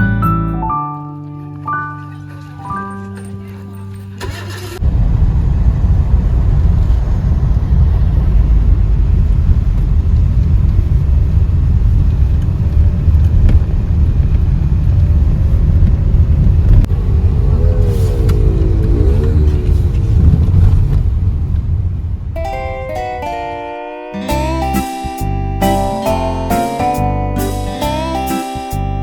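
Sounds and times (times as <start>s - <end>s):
vehicle engine and road rumble: 2.0s - 22.4s.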